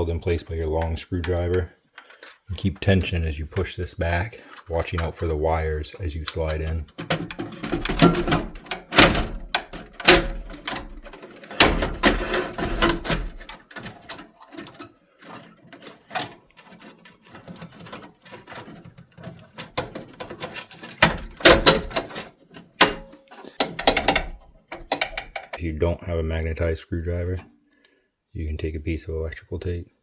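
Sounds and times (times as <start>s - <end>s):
metal clanks scrapes and clicks: 0.6s - 3.2s, 4.3s - 5.3s, 6.0s - 25.6s.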